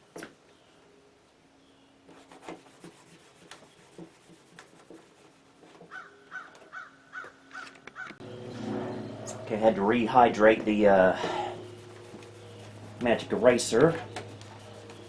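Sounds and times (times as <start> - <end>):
squeaking scrub strokes: 2.1 - 6.1, 8.4 - 15.0
foam pad scrubbing plastic: 11.3 - 15.0.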